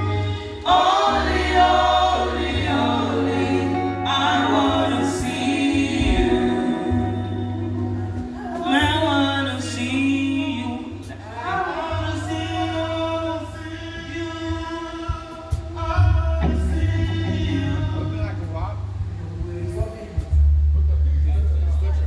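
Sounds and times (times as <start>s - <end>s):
voices singing held notes: 0.0s - 18.5s
band bass line: 0.0s - 22.0s.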